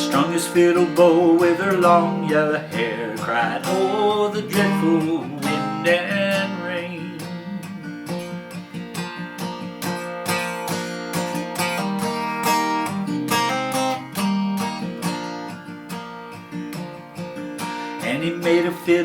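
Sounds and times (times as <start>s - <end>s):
acoustic guitar picking melody: 0.0s - 19.0s.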